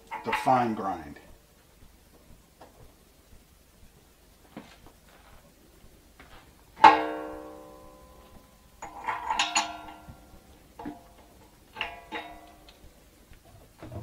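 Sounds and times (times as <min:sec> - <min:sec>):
metal parts clanking and ringing: 0:08.8 - 0:10.1.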